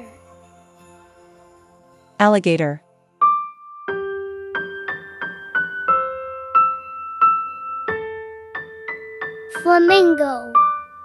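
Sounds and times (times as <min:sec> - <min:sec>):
simple piano melody: 0:02.8 - 0:11.0.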